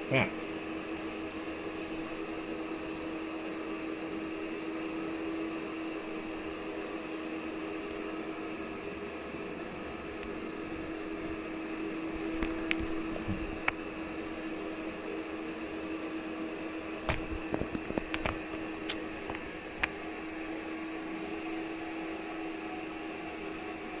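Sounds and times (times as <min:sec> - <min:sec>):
steady mechanical hum: 0:00.0 - 0:24.0
light clicks and taps: 0:17.1 - 0:20.0.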